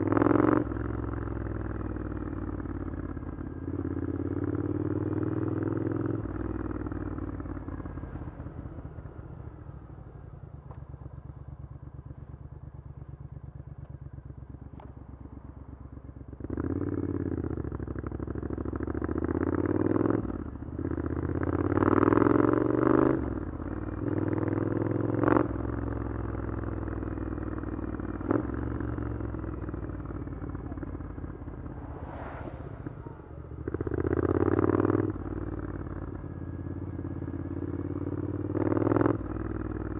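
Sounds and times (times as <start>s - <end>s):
motorcycle engine revving: 28.0s - 35.9s.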